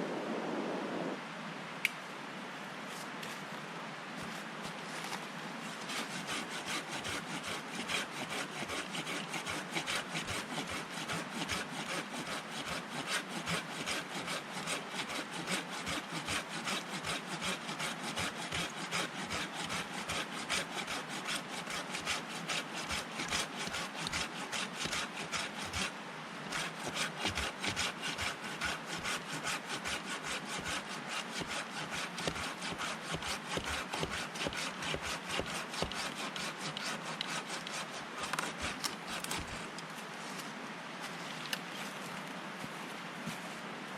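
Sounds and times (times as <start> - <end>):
hand saw cutting wood: 5.8 - 39.8.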